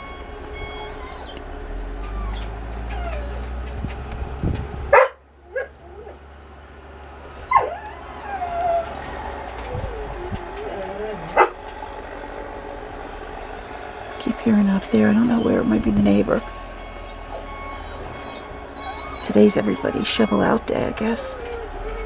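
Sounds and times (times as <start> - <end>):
snow-clearing machine engine rumble: 0.0 - 22.0
dog whining and yipping: 0.3 - 3.7, 5.0 - 6.2, 7.5 - 11.6, 14.8 - 22.0.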